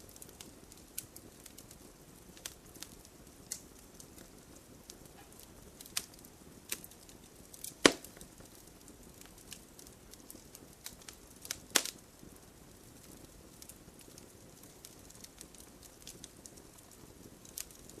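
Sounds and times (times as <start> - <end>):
faint steady hiss: 0.0 - 18.0
wood fire crackling: 0.0 - 18.0.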